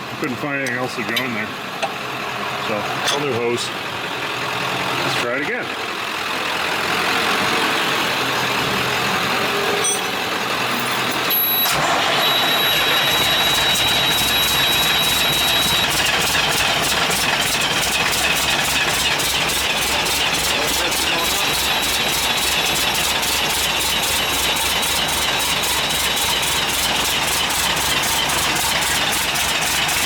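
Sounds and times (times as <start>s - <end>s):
diesel engine running: 0.0s - 30.0s
starter motor cranking: 11.3s - 30.0s.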